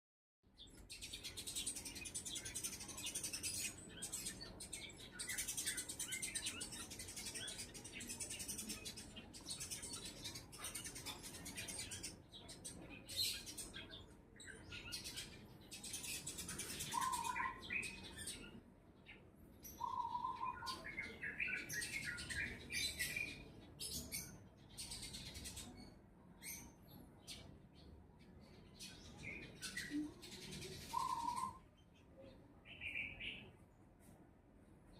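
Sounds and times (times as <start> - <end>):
birds chirping in chorus: 0.5 - 33.7.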